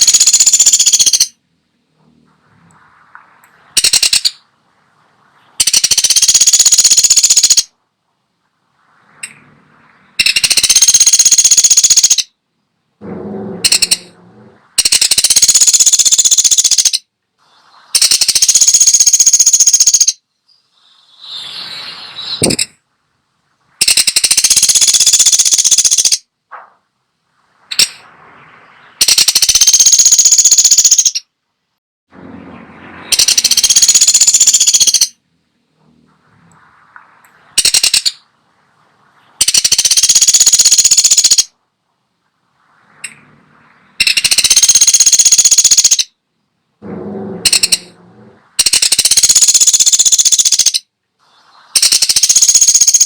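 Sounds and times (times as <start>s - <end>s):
woodpecker rattling bursts: 0.0s - 1.4s, 2.9s - 7.8s, 9.1s - 12.4s, 13.0s - 17.1s, 17.9s - 20.2s, 22.2s - 22.8s, 23.7s - 26.7s, 27.4s - 31.3s, 32.2s - 35.2s, 37.2s - 41.6s, 43.0s - 46.2s, 46.8s - 50.9s, 51.7s - 53.0s.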